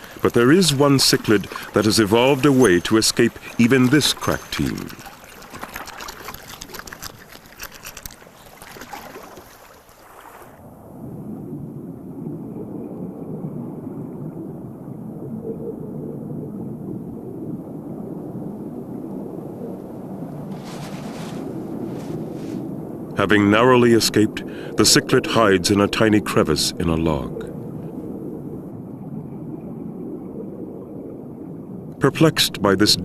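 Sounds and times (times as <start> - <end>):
water splashing and bubbling: 0.0 - 13.4
muffled rush of water: 0.0 - 33.0.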